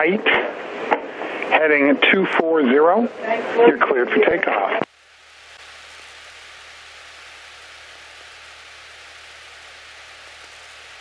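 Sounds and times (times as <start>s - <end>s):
radio intercom hiss: 0.0s - 4.9s.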